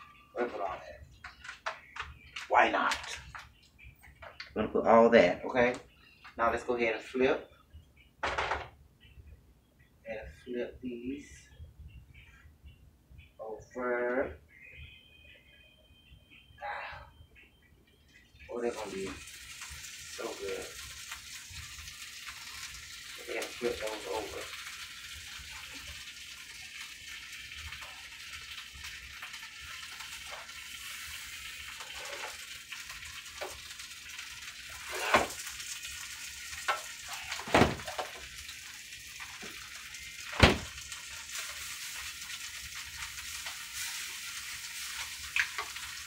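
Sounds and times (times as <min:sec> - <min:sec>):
tortillas sizzling in a frying pan: 0:00.0 - 0:07.1, 0:18.1 - 0:46.0.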